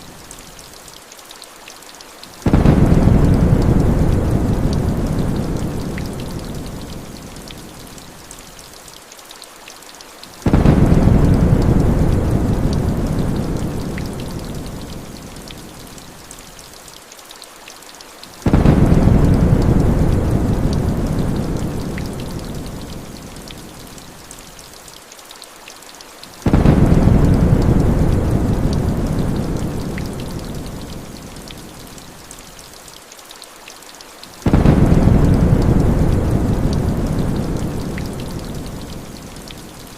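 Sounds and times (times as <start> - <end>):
heavy rain pouring: 0.0 - 39.9
deep thunder rumbles: 2.4 - 6.9, 10.5 - 14.9, 18.5 - 22.9, 26.4 - 31.0, 34.4 - 39.0.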